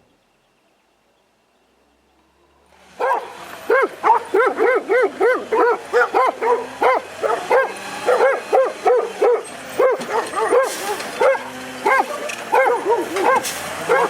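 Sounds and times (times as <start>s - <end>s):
dog barking rapidly: 3.0s - 14.0s.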